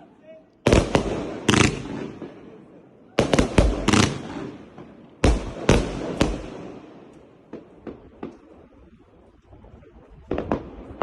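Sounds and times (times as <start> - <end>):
fireworks bangs with echo: 0.6 - 8.6, 10.2 - 11.0.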